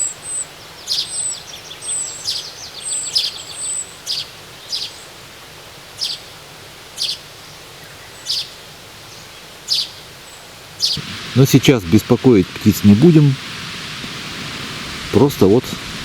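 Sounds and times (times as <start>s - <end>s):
sharp bird call: 0.0s - 5.1s, 6.0s - 6.3s, 7.0s - 8.6s, 9.2s - 10.1s, 10.8s - 11.0s
birds singing and calling: 0.0s - 11.1s.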